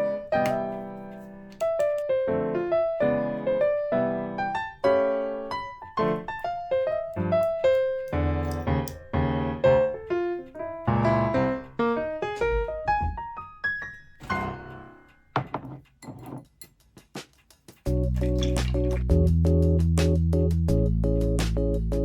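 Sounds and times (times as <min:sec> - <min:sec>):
gentle piano piece: 0:00.0 - 0:15.4.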